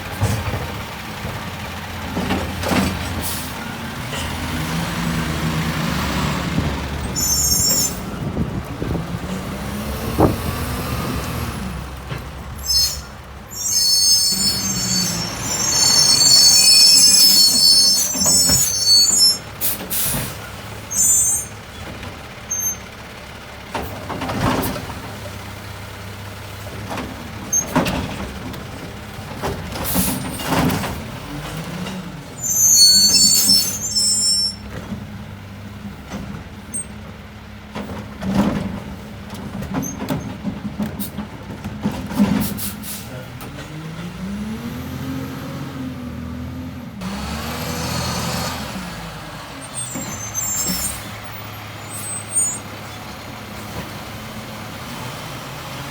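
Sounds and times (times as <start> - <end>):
diesel engine running: 0.0 - 55.9
engine revving: 8.8 - 11.9, 43.4 - 49.8
air brake hiss: 42.4 - 43.2.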